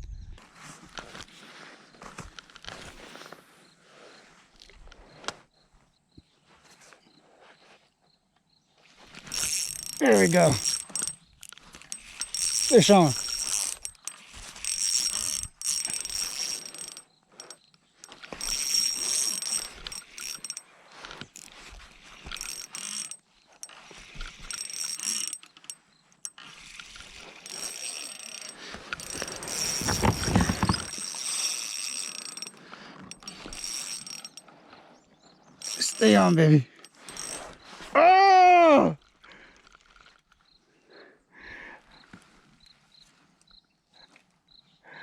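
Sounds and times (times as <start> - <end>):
reel drag clicking: 9.1 - 34.9, 35.5 - 37.7
fishing reel ratcheting: 9.2 - 34.6, 35.6 - 37.7.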